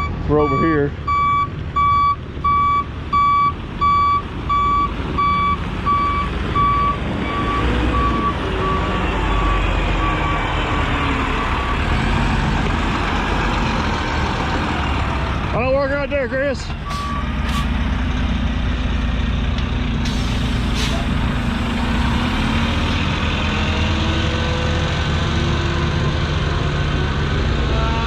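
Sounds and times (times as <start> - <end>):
truck reversing alarm beeping: 0.0 - 12.2, 16.8 - 17.7
diesel engine running: 0.0 - 28.0.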